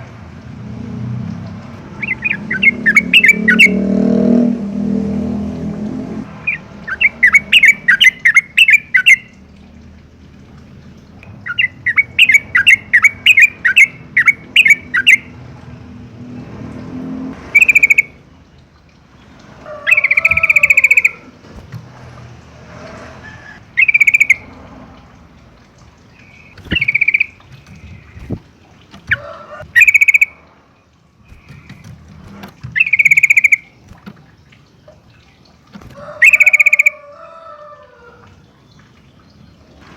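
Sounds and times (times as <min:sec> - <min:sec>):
bird calls: 0:01.9 - 0:03.9, 0:06.4 - 0:09.4, 0:11.2 - 0:15.4, 0:17.5 - 0:18.2, 0:19.7 - 0:21.9, 0:23.2 - 0:24.6, 0:26.1 - 0:28.4, 0:29.0 - 0:30.5, 0:31.2 - 0:34.1, 0:35.8 - 0:37.4
bird chattering: 0:02.0 - 0:03.8, 0:06.4 - 0:09.4, 0:11.4 - 0:15.3, 0:17.6 - 0:18.2, 0:19.9 - 0:21.7, 0:23.8 - 0:24.5, 0:26.2 - 0:28.4, 0:29.1 - 0:30.4, 0:31.3 - 0:33.8, 0:36.2 - 0:37.0.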